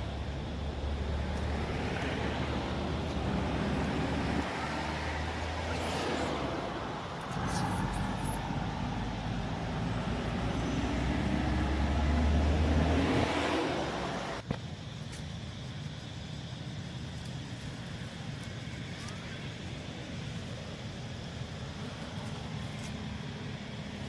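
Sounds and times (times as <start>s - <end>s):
passing vehicle engine rumble: 0.0s - 14.4s.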